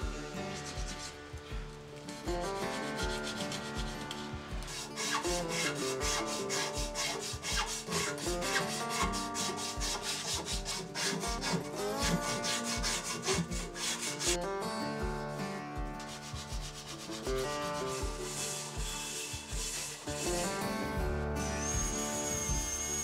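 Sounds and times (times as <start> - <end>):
soft background music: 0.0 - 23.0
sandpaper rubbing on wood: 0.2 - 1.2, 2.8 - 14.4, 16.0 - 20.4.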